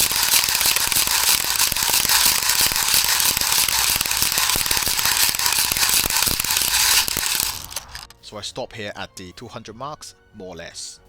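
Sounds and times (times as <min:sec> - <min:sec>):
speed loader ratcheting clicks: 0:00.0 - 0:08.2.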